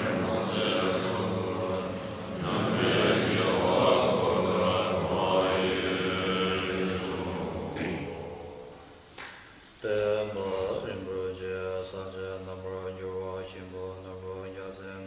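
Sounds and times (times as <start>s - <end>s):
group of voices chanting: 0.0s - 9.0s.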